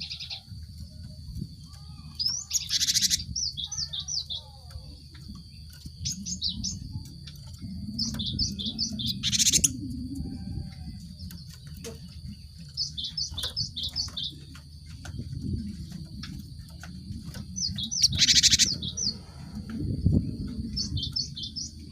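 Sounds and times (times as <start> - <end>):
bird high chirps: 0.0 - 10.4, 11.2 - 14.6, 17.3 - 19.3
steady low rumble: 0.0 - 21.9
bird harsh rattling call: 17.6 - 19.1.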